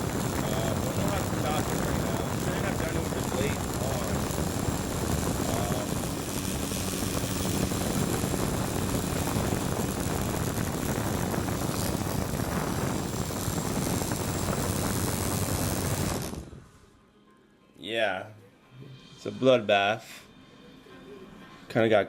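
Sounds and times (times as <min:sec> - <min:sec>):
drone motors whirring: 0:00.0 - 0:16.5.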